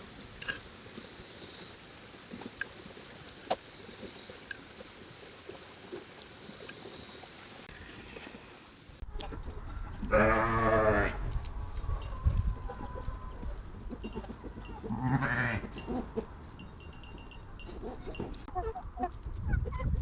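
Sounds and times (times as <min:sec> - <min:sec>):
goat or sheep bleating: 0:10.0 - 0:11.4, 0:12.7 - 0:16.2.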